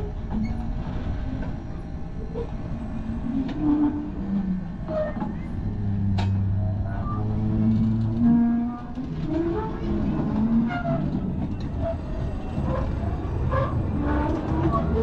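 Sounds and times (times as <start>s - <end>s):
small train rumbling: 0.0s - 15.0s.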